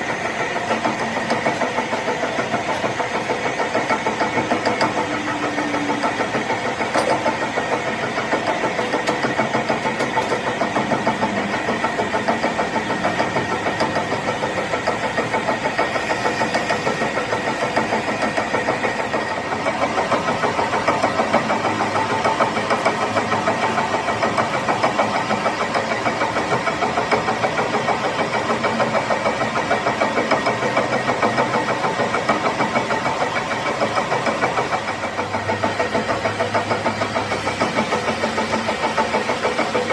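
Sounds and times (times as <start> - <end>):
machine motor pulsing: 0.0 - 39.9.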